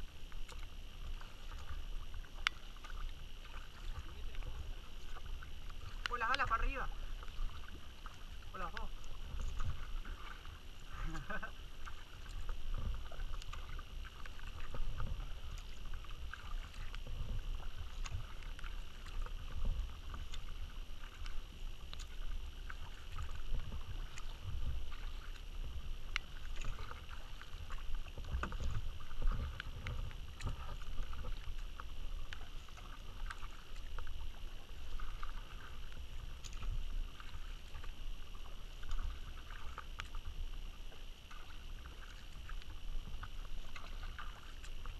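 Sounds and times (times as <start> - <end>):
paddle splashing in water: 0.0 - 44.9
steady low rumble: 0.0 - 44.9
water dripping: 2.3 - 4.4, 5.0 - 10.3.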